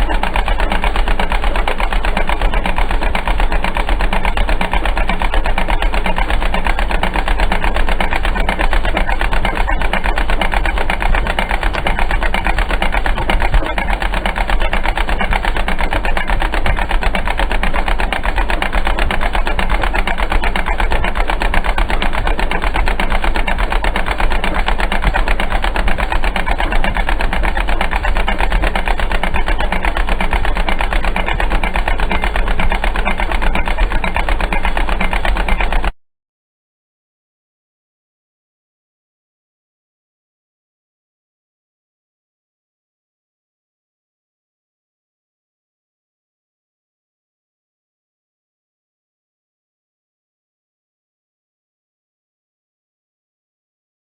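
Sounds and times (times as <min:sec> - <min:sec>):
tractor engine running: 0:00.0 - 0:35.9.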